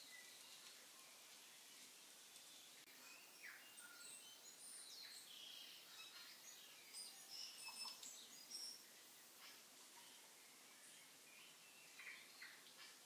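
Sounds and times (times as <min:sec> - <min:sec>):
background hiss: 0:00.0 - 0:13.0
birds chirping and whistling: 0:02.9 - 0:13.0.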